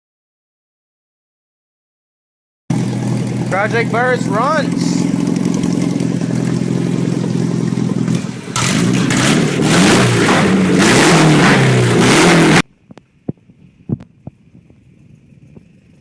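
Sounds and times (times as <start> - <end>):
car engine idling and revving: 2.7 - 12.8, 14.2 - 16.0.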